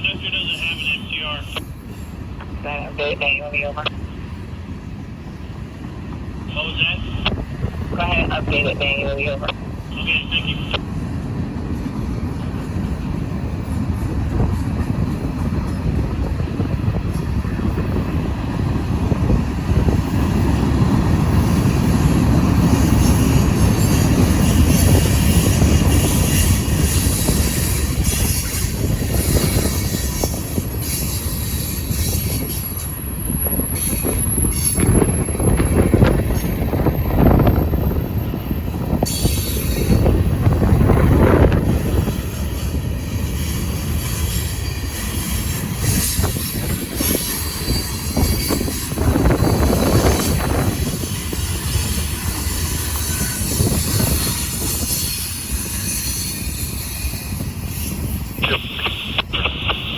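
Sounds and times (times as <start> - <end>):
train wheels rumbling on rails: 0.0 - 59.9
high wheel squeal: 42.5 - 59.1.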